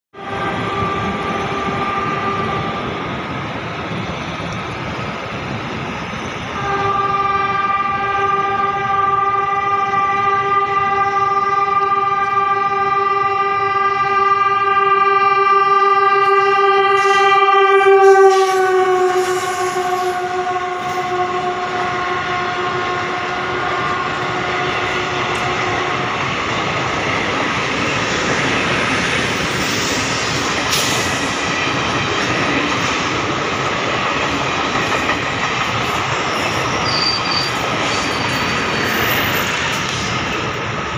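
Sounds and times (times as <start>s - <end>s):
train horn: 0.2s - 3.1s, 6.6s - 26.8s, 36.6s - 39.6s
train coaches clattering over rail joints: 24.9s - 40.9s.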